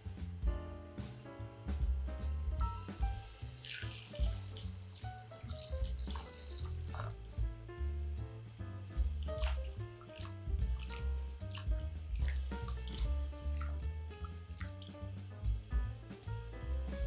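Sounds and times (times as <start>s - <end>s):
background music with bass: 0.0s - 17.0s
water running from tap: 3.5s - 7.2s, 9.4s - 13.7s.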